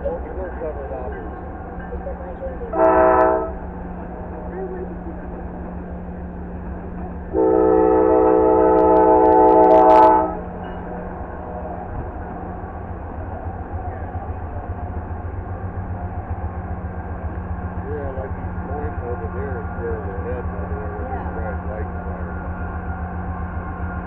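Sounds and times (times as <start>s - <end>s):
train rumble and hum: 0.0s - 24.0s
locomotive air horn blast: 2.7s - 3.6s, 7.3s - 10.4s.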